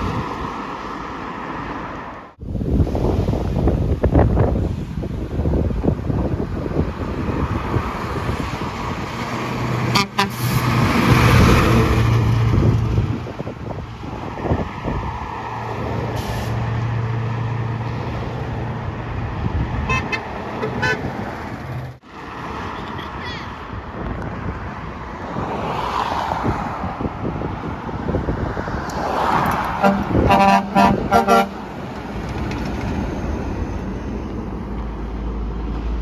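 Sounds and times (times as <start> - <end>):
road noise: 0.0 - 36.0
truck horn: 9.8 - 10.9, 19.8 - 21.2, 29.7 - 32.0
truck engine drone: 28.9 - 36.0.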